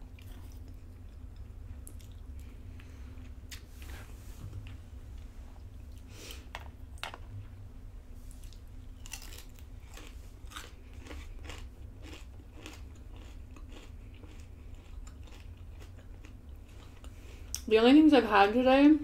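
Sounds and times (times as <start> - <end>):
crispy bacon crunching: 8.3 - 17.7.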